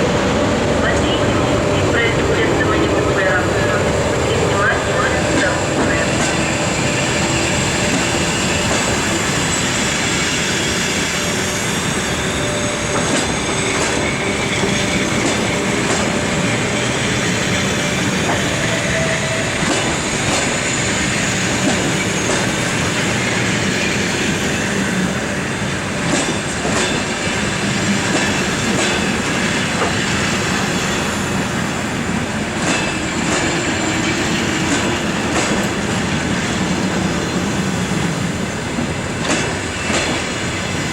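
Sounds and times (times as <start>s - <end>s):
train rolling rumble: 0.0s - 40.9s
train wheels clicking over rail joints: 4.4s - 25.0s, 25.6s - 31.2s, 32.2s - 40.9s
wheel squeal: 6.0s - 15.8s.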